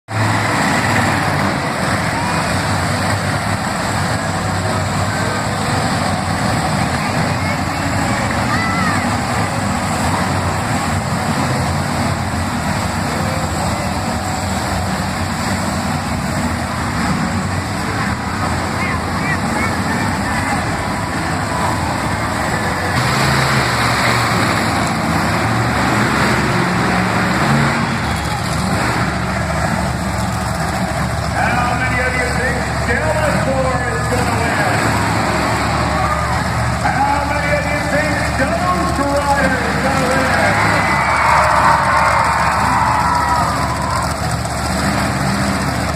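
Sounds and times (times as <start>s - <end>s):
monster truck engine roaring: 0.0s - 45.9s
dense rushing noise: 0.1s - 45.9s.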